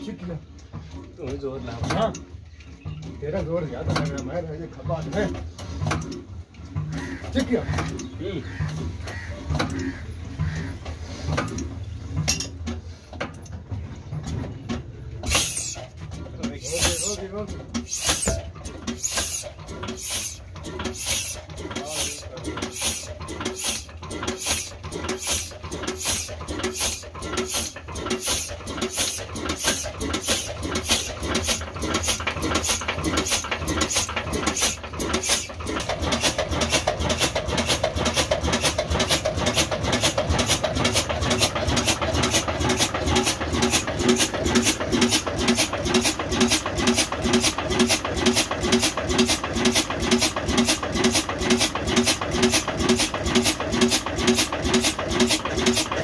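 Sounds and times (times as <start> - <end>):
stationary engine running: 13.6 - 56.0.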